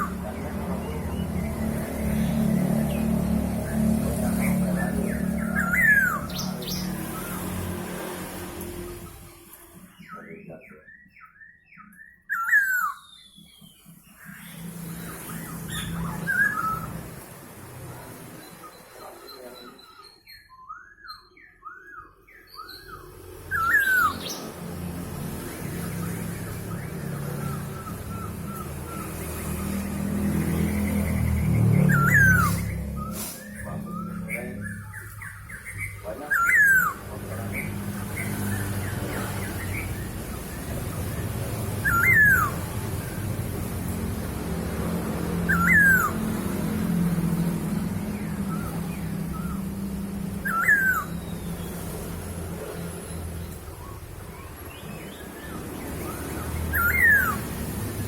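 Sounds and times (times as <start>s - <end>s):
bird whistled calls: 4.5s - 7.4s, 10.0s - 13.8s, 15.3s - 16.9s, 31.8s - 38.7s, 41.8s - 42.7s, 45.4s - 46.3s, 48.4s - 51.9s, 53.1s - 57.6s.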